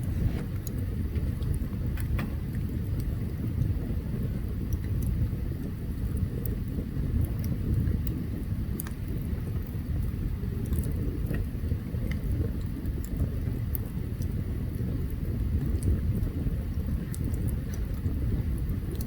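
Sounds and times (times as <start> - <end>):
fire low rumble: 0.0 - 19.0
campfire crackling and popping: 0.5 - 19.0.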